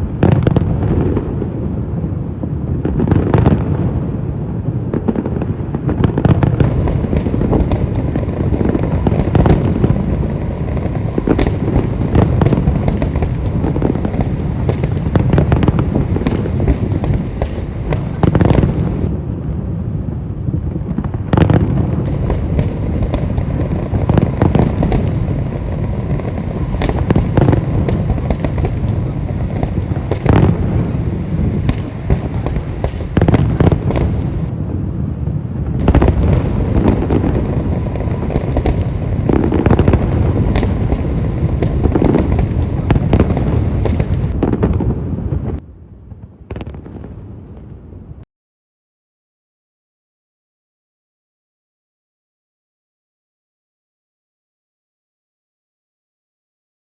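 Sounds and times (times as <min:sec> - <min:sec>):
continuous low rumble: 0:04.0 - 0:46.4
fireworks shells bursting: 0:35.8 - 0:44.4.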